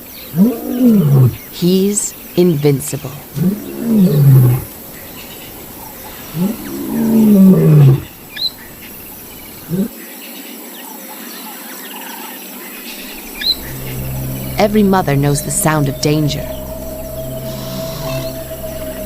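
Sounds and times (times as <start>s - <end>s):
faint bird chirps: 0.0s - 9.9s, 12.8s - 19.0s
lion grunt: 0.3s - 1.4s, 3.2s - 4.7s, 6.2s - 8.1s, 9.6s - 9.9s
lion roaring: 0.3s - 1.5s, 3.2s - 4.8s, 5.5s - 8.2s, 9.6s - 9.9s, 15.4s - 19.0s.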